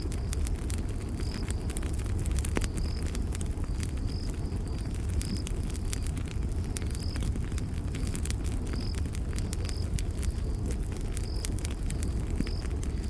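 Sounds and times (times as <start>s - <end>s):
campfire crackling and popping: 0.0s - 13.0s
low rumble of burning wood: 0.0s - 13.0s
cricket chirping: 3.7s - 5.4s.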